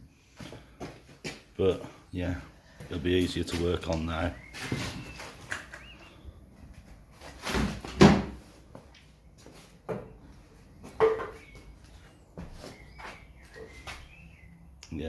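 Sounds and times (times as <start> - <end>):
tools knocking and clunking: 9.8 - 10.2, 10.9 - 11.6.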